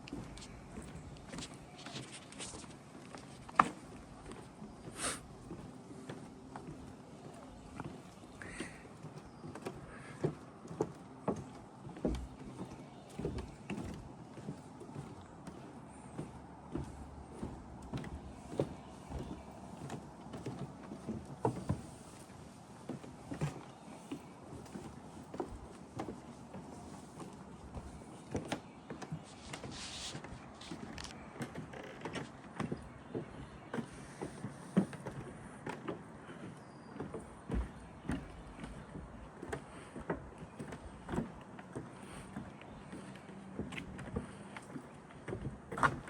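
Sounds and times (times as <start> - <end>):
footsteps walking: 0.0 - 8.8, 9.7 - 36.4.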